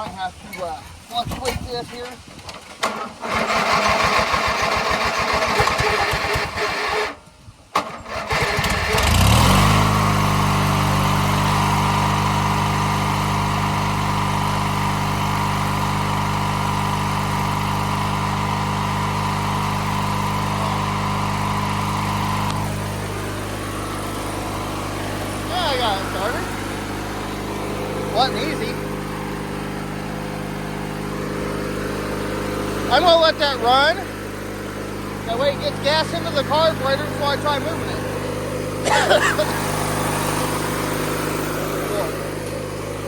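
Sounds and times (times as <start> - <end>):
mower engine cranking on starter: 0.6 - 43.0
mower engine running: 2.6 - 43.0.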